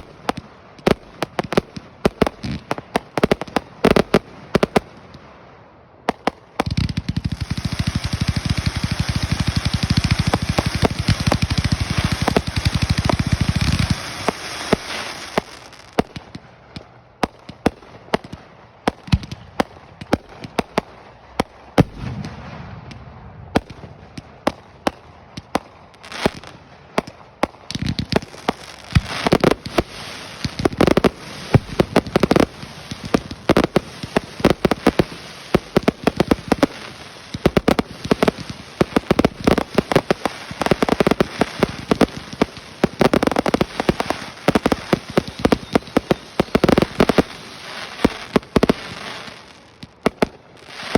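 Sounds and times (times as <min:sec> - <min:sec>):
fireworks crackling: 0:00.0 - 0:50.9.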